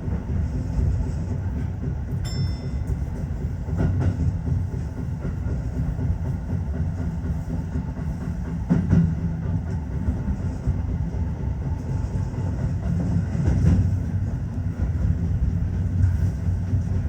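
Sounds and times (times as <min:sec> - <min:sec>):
wheels rumbling on rail: 0:00.0 - 0:17.0.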